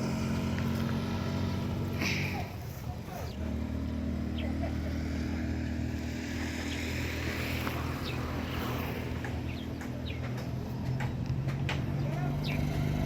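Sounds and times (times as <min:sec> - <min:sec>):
engine humming steadily: 0:00.0 - 0:13.0.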